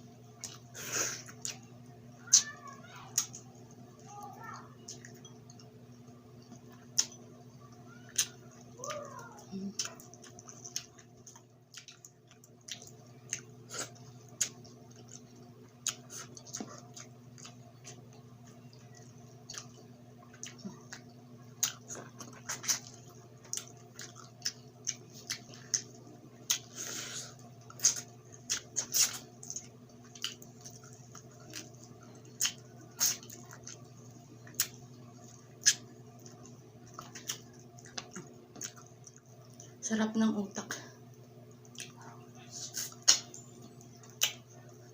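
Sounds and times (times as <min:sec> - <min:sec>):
steady low hum: 0:00.0 - 0:44.9
wet chewing and mouth smacks: 0:00.4 - 0:02.5, 0:04.8 - 0:08.8, 0:09.7 - 0:39.8, 0:41.0 - 0:44.9
sharp crunches while chewing: 0:09.7 - 0:39.8, 0:42.7 - 0:44.9.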